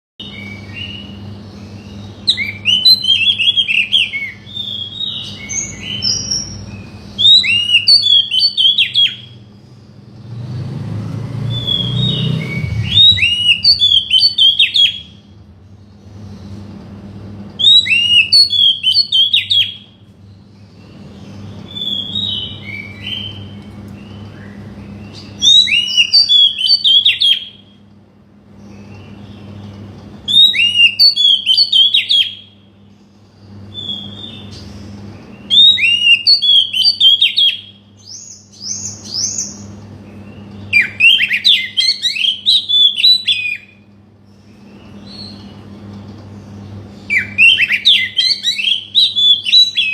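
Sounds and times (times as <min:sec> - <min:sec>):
bird song whistling and chattering: 0:00.2 - 0:09.5, 0:11.4 - 0:15.3, 0:17.6 - 0:27.8, 0:28.6 - 0:32.7, 0:33.5 - 0:43.9, 0:44.5 - 0:45.8, 0:46.4 - 0:49.9
faint low hum: 0:00.2 - 0:36.0.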